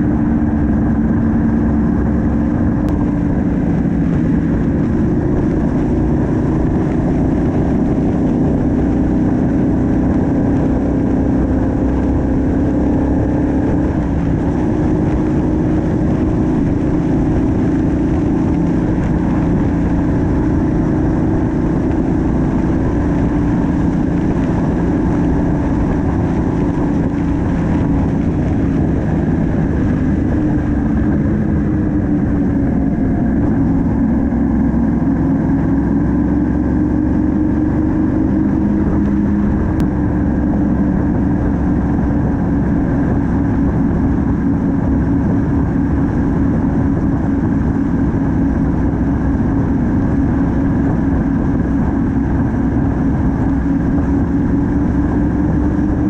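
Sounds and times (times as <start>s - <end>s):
motorcycle engine running: 0.0s - 56.0s
wind and road noise: 0.0s - 56.0s.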